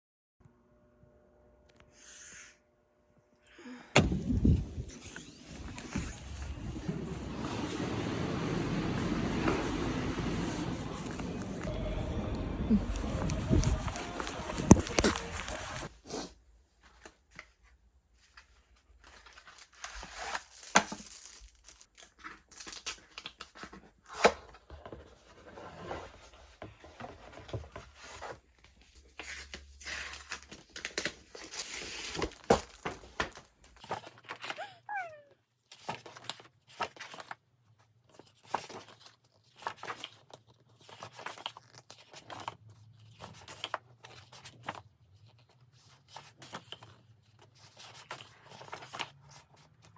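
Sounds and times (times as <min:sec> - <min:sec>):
packaging tearing and crinkling: 0:19.2 - 0:24.3, 0:29.2 - 0:34.6, 0:38.4 - 0:44.8.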